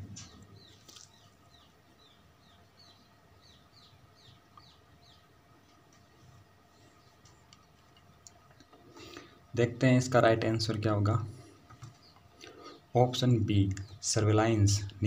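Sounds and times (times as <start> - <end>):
bird chirping: 0.0 - 15.0
faint steady hum: 0.0 - 15.0.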